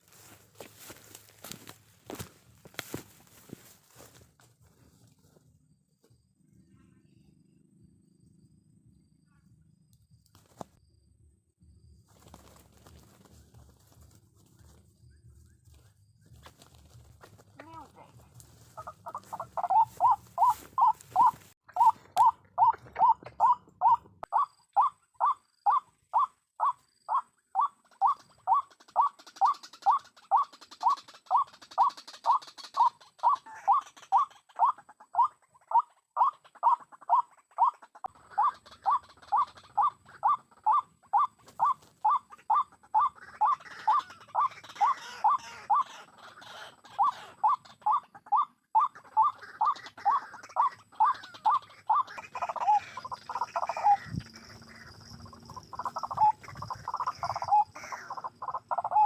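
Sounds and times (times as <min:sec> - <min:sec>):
waterhen calling: 0:17.6 - 0:59.0.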